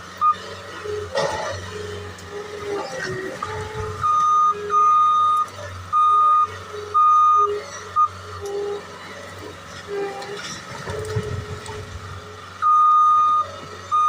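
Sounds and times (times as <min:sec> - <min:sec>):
diesel engine hum: 0:00.0 - 0:14.0
backup alarm beeping: 0:04.0 - 0:08.2, 0:12.6 - 0:14.0.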